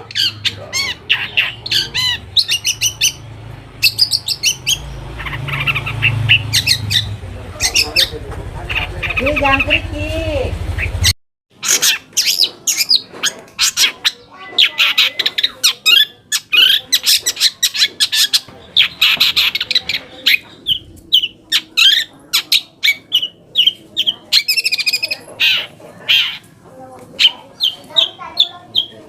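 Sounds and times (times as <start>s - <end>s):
bird singing harsh scratchy notes: 0.0s - 29.0s.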